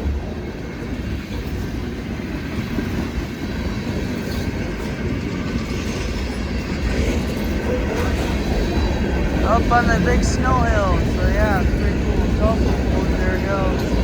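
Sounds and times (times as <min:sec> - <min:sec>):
freight train wheels clattering: 0:00.0 - 0:14.0.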